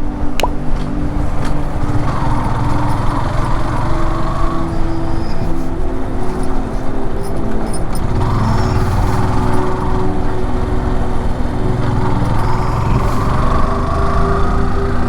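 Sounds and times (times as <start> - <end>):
motorcycle engine running: 1.7 - 5.6, 7.7 - 15.0.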